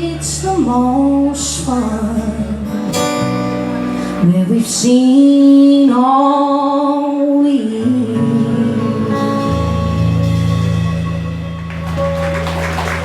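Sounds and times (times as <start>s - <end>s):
guitar and strings chord: 2.1s - 4.6s, 8.2s - 13.0s
person singing: 4.0s - 10.3s.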